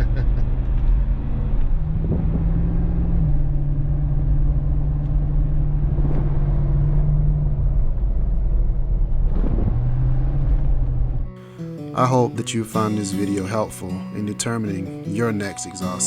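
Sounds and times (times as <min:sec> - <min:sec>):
car engine drone from cabin: 0:00.0 - 0:11.3
road rumble: 0:00.0 - 0:11.4.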